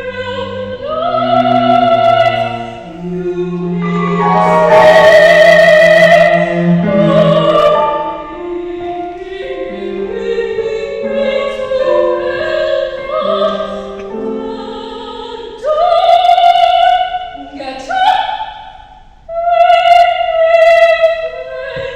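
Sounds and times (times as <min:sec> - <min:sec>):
low sustained instrumental line: 0:00.0 - 0:10.9
operatic singing: 0:00.0 - 0:18.0.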